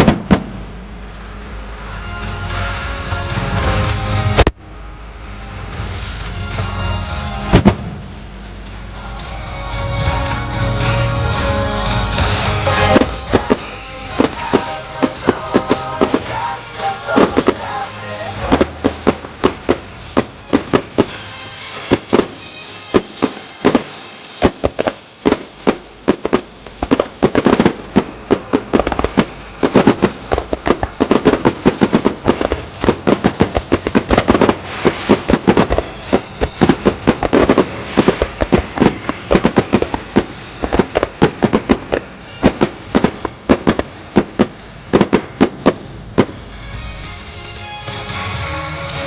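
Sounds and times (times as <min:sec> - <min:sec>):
fireworks bangs: 0:00.0 - 0:04.6, 0:07.4 - 0:08.6, 0:12.2 - 0:46.9.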